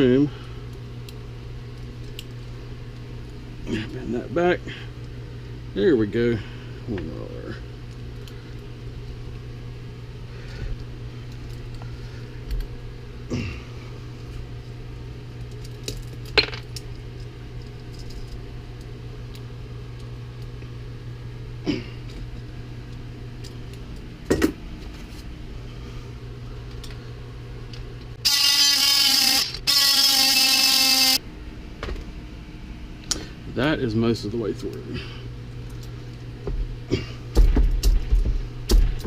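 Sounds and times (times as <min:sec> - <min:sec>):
steady low hum: 0:00.0 - 0:39.0
power cutting tool cutting: 0:28.2 - 0:31.2.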